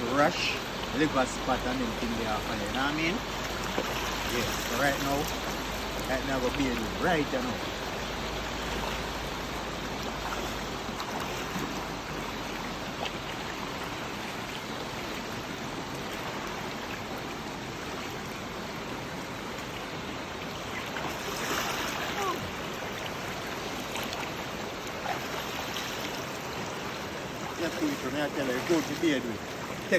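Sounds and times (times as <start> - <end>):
river water rushing: 0.0 - 29.9.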